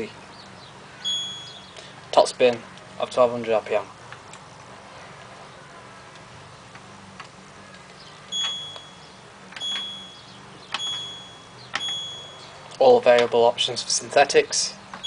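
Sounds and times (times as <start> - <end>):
short high electronic beep: 1.0 - 1.6.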